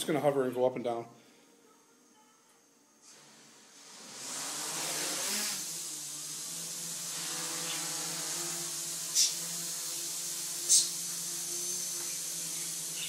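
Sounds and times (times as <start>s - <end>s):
drone motors buzzing: 3.1s - 13.0s.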